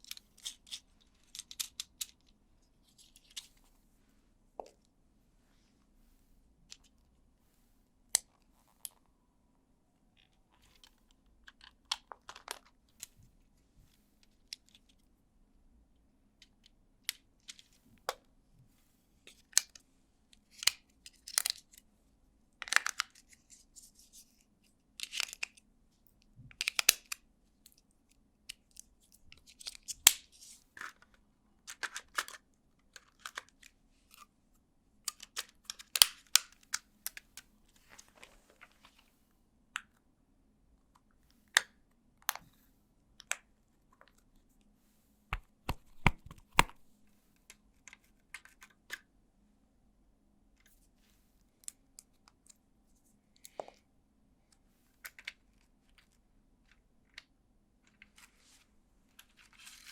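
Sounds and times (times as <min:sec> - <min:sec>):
plastic parts clicking and snapping: 0:00.0 - 0:02.3, 0:35.1 - 0:37.2, 0:45.3 - 0:46.8.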